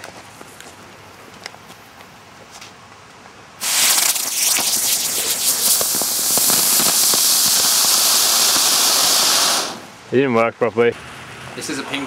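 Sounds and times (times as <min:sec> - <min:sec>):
pyrotechnic device hissing and crackling: 0:03.6 - 0:10.0.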